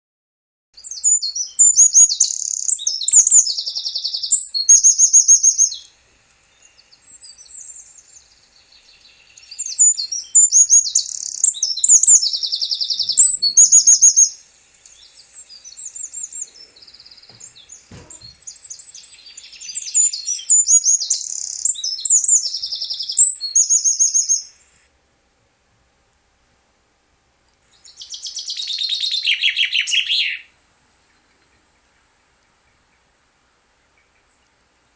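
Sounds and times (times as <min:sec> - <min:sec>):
songbird trilling: 0:00.8 - 0:05.9, 0:06.5 - 0:24.7, 0:27.7 - 0:30.5
quiet bird chirping: 0:00.8 - 0:25.0, 0:27.6 - 0:34.9.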